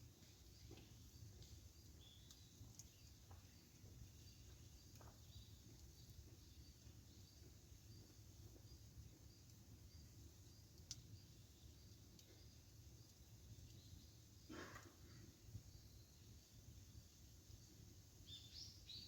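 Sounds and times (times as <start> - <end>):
campfire crackling and popping: 0.0 - 18.3.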